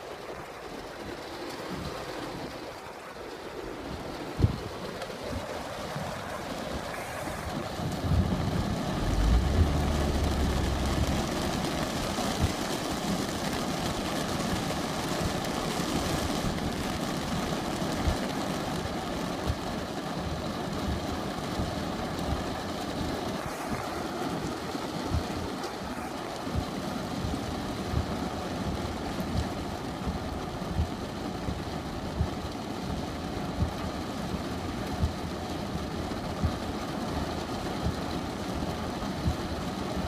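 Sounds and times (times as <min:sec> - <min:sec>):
steady rain: 0:00.0 - 0:40.0
thunder rumbling: 0:07.6 - 0:13.2.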